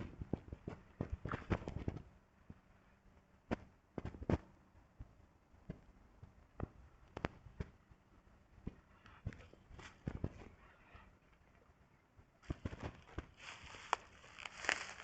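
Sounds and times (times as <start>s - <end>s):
faint sharp clicks and knocks: 3.5s - 7.8s.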